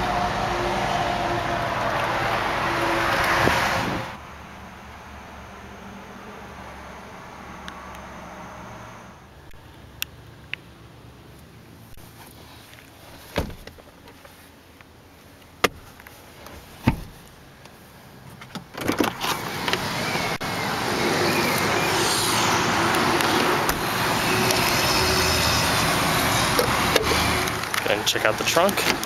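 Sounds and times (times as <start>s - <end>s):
loud rushing noise: 20.3s - 27.6s.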